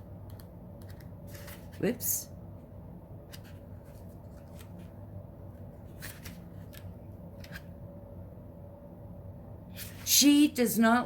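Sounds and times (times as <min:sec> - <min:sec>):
low steady hum: 0:00.0 - 0:11.0
cards sliding and flicking: 0:00.8 - 0:01.8, 0:05.9 - 0:07.7.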